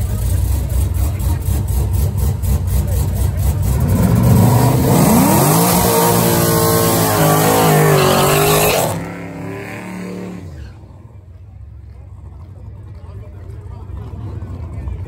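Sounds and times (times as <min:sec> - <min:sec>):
car engine accelerating hard: 0:00.0 - 0:11.2.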